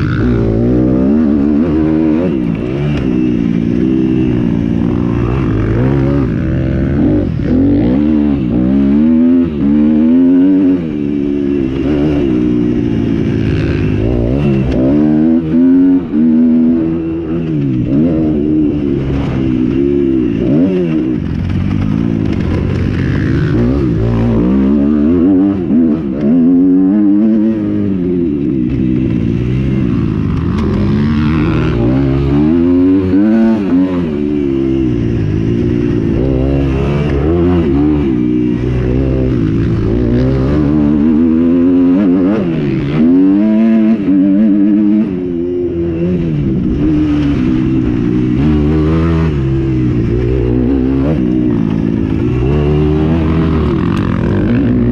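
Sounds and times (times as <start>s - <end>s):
motocross bikes revving: 0.0s - 54.9s.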